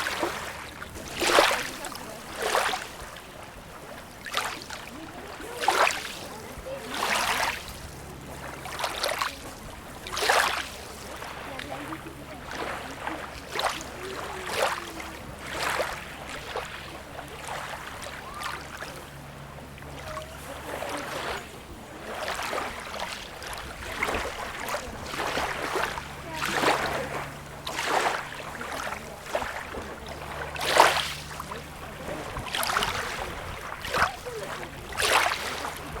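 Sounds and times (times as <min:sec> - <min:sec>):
small waves lapping and splashing: 0:00.0 - 0:36.0.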